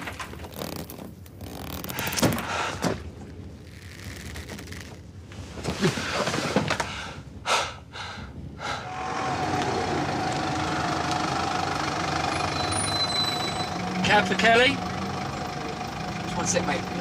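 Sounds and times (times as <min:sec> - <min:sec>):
car engine idling: 0:08.8 - 0:17.0.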